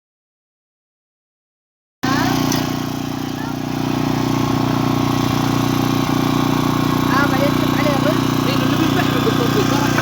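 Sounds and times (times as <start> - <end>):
engine running with even hum: 2.0 - 10.0.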